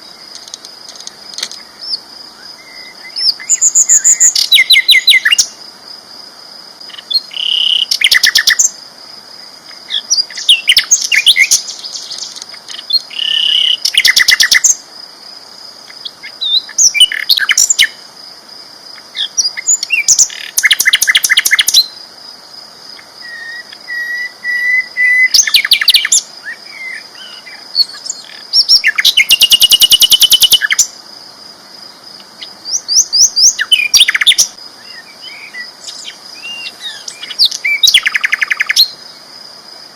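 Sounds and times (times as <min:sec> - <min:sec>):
bird singing trilling phrases: 0:01.4 - 0:05.6, 0:06.9 - 0:08.8, 0:09.9 - 0:14.8, 0:15.9 - 0:18.0, 0:19.0 - 0:22.0, 0:23.0 - 0:30.9, 0:32.4 - 0:39.0.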